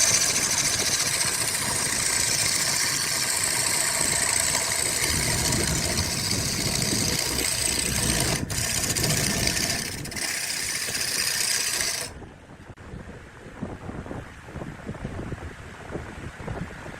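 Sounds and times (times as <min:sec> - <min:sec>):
workshop power tool running: 0:00.0 - 0:12.2.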